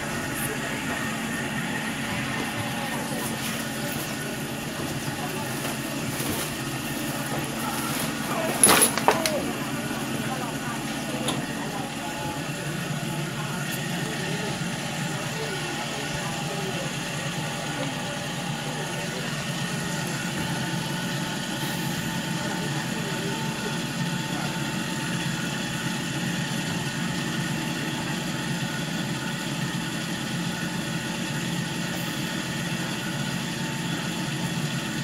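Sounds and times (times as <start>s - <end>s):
train interior hum: 0.0s - 23.5s
faint voices: 0.0s - 28.4s.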